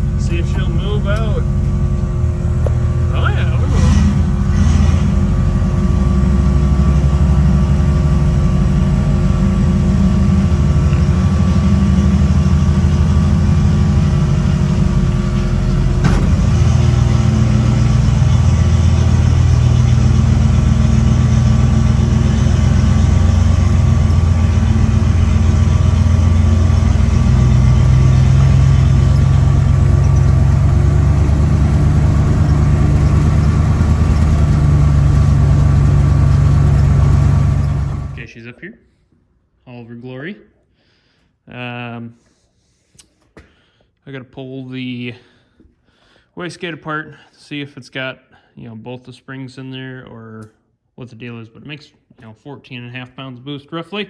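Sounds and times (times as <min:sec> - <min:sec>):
car engine running: 0:00.0 - 0:38.3
click: 0:50.4 - 0:50.6.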